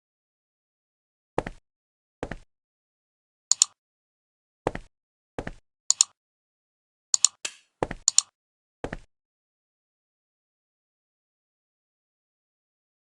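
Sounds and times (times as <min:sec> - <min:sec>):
sharp high double clicks: 0:03.5 - 0:03.8, 0:05.9 - 0:06.2, 0:07.2 - 0:08.3.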